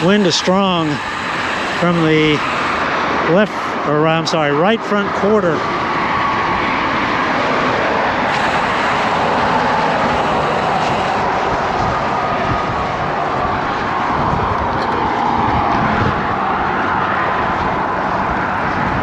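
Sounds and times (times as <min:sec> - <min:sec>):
road and traffic noise: 0:00.0 - 0:19.0
wind buffeting microphone: 0:05.4 - 0:19.0.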